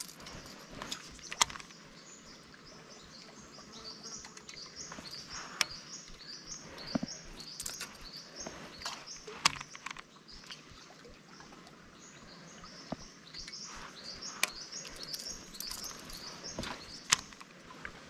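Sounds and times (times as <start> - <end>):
birds chirping: 0.0 - 17.5.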